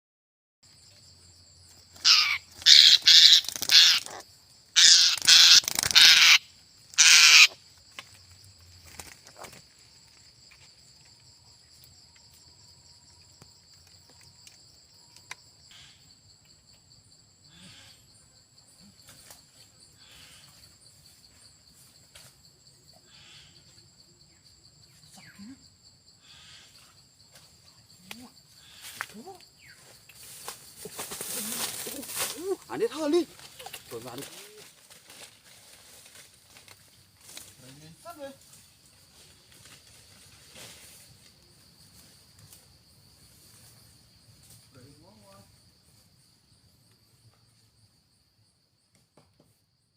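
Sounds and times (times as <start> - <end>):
high-pitched insect drone: 1.0 - 47.2
bird harsh calls: 2.0 - 7.6.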